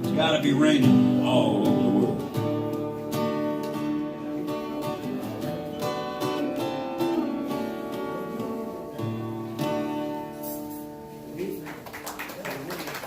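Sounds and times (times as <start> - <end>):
acoustic guitar strumming chords: 0.0 - 11.4.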